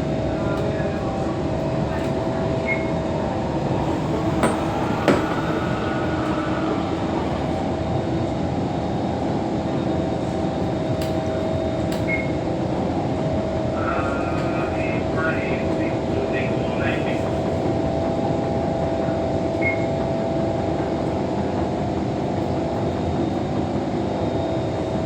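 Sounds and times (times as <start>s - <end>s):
train wheels rumbling on rail: 0.0s - 25.0s
electric motor hum: 3.2s - 8.0s
sharp knocks: 4.4s - 5.5s.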